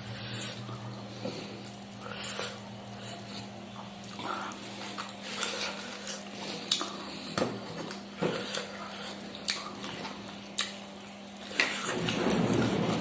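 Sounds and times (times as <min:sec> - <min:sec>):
low steady hum: 0:00.0 - 0:13.0
mouth smacking and chewing: 0:01.6 - 0:11.9.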